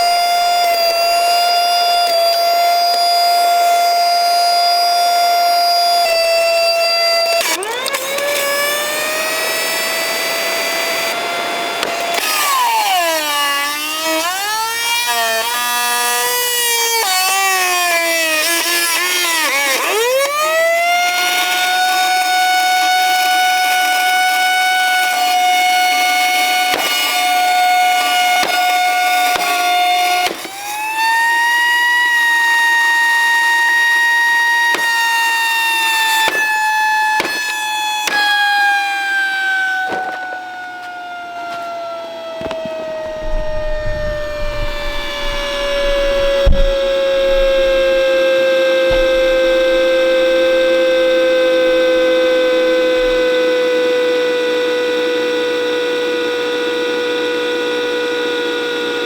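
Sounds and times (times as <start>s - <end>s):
vacuum cleaner motor whining: 0.0s - 59.0s
low rumble: 43.1s - 48.1s
sharp knocks: 43.1s - 53.4s.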